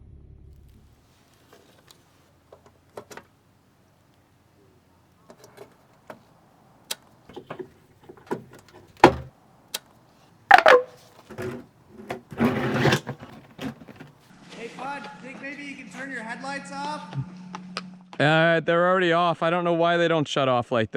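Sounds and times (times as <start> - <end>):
short falling squeak: 10.5 - 11.0.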